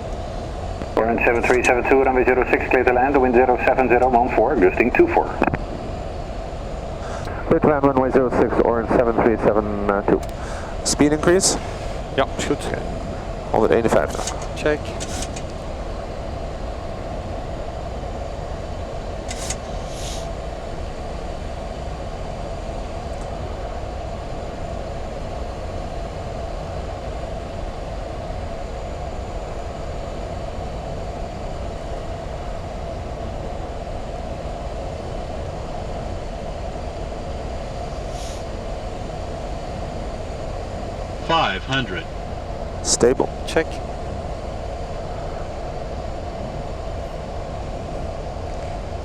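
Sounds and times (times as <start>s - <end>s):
airflow and jet engine rush: 0.0s - 49.0s
brief hisses: 19.4s - 20.3s, 38.1s - 38.4s.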